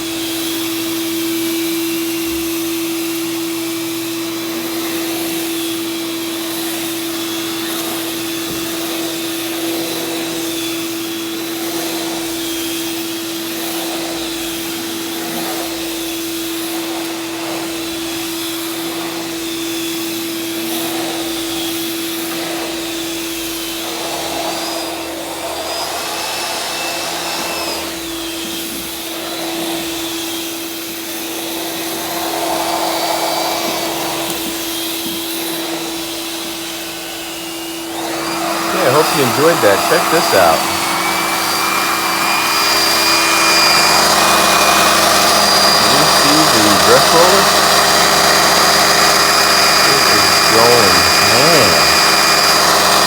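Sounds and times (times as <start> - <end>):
vacuum cleaner on carpet: 0.0 - 53.0.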